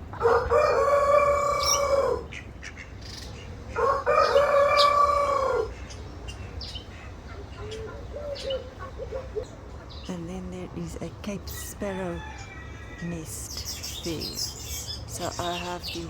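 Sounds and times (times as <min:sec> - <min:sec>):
large bird calling: 0:00.0 - 0:10.3, 0:11.4 - 0:16.0
small birds chirping faintly: 0:00.0 - 0:16.0.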